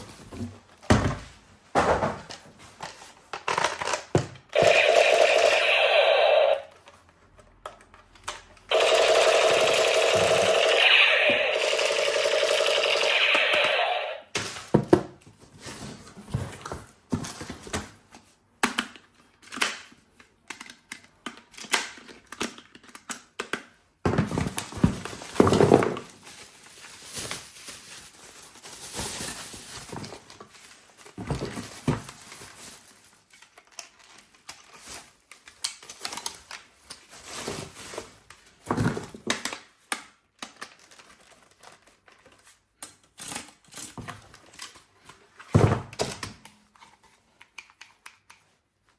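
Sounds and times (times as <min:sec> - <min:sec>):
objects and packaging handled: 0:00.0 - 0:05.2, 0:14.2 - 0:48.9.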